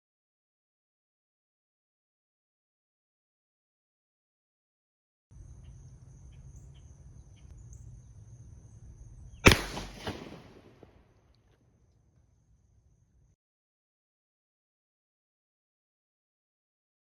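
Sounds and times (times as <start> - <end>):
gunshot echo: 9.4 - 11.0
pistol shot: 9.4 - 11.0.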